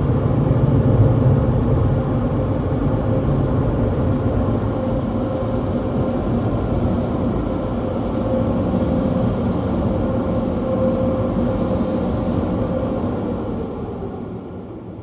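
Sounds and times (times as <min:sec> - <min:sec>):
car wash rushing roar: 0:00.0 - 0:15.0.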